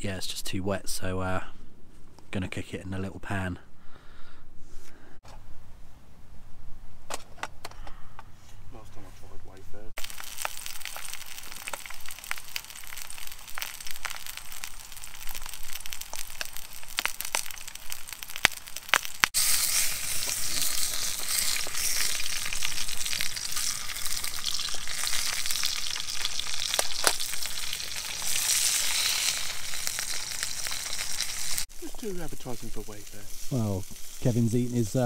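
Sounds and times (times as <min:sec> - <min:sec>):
sausages sizzling in a pan: 0:10.0 - 0:35.0.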